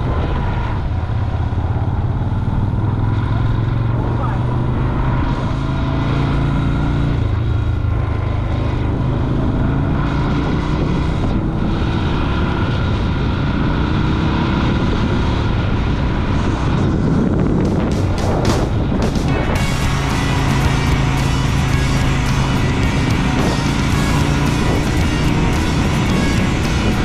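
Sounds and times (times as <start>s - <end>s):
motorcycle engine running: 17.3s - 27.0s.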